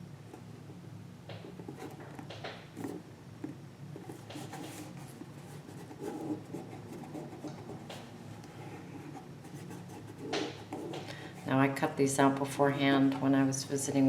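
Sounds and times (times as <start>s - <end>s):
low steady hum: 0.0s - 14.0s
paper rustling and scraping: 4.0s - 11.1s.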